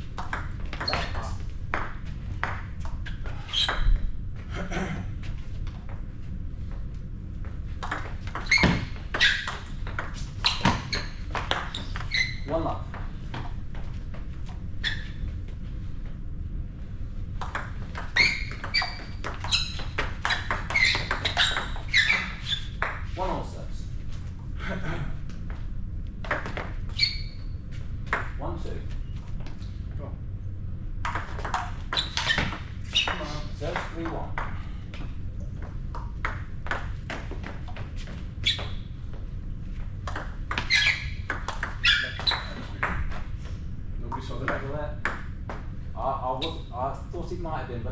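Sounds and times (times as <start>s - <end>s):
shoes squeaking on floor: 0.5s - 1.5s, 3.0s - 4.2s, 8.0s - 15.6s, 17.5s - 23.2s, 26.4s - 28.0s, 31.2s - 34.1s, 35.6s - 43.4s.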